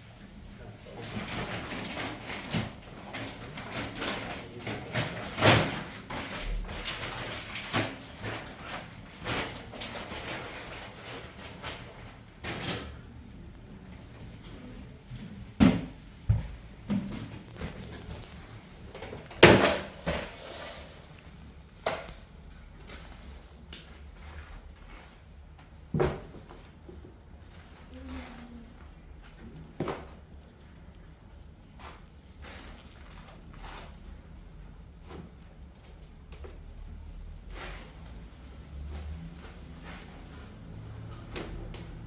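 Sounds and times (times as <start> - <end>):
objects knocking and thudding: 14.4 - 22.6, 25.8 - 27.0.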